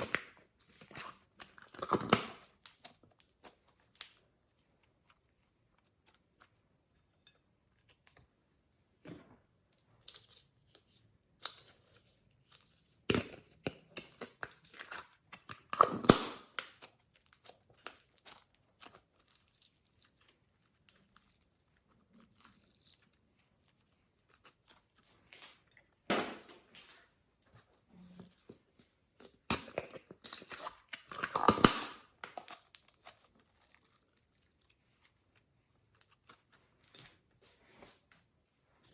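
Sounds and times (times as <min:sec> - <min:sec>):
slime squelching and crackling: 0:27.4 - 0:37.4.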